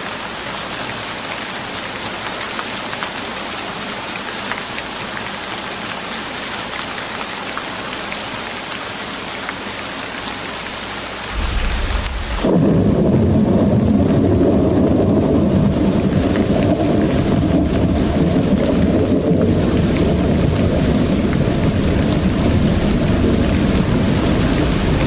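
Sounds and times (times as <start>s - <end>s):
steady rain hiss: 0.0s - 25.0s
low rumble: 11.2s - 13.6s
deep muffled rumbling: 11.3s - 13.6s.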